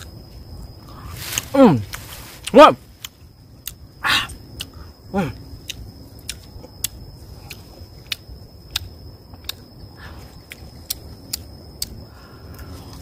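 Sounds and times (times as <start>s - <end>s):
person chewing crunchy fruit: 0.0s - 12.0s.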